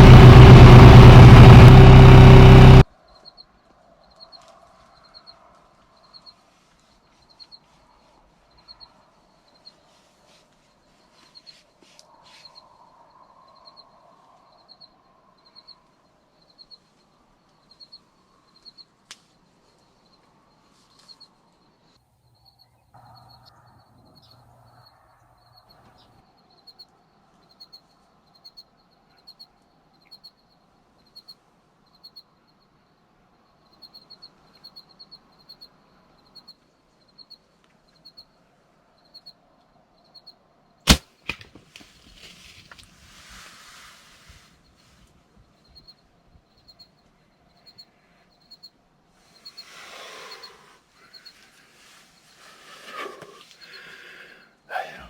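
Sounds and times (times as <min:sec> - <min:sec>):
faint outdoor background: 0:00.0 - 0:55.0
bowstring snap: 0:40.9 - 0:41.9.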